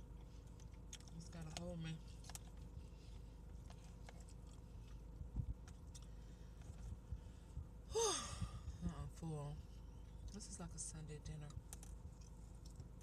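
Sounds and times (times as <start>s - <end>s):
faint chewing: 0.0s - 7.6s, 11.2s - 13.0s.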